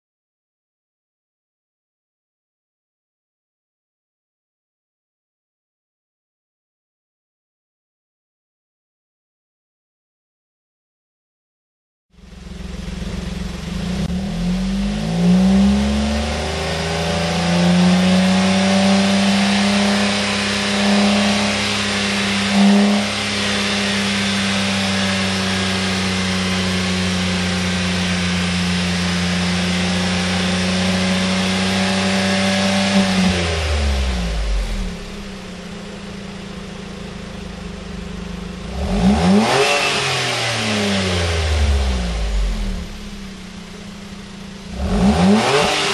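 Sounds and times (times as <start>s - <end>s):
car engine revving: 12.2s - 45.9s.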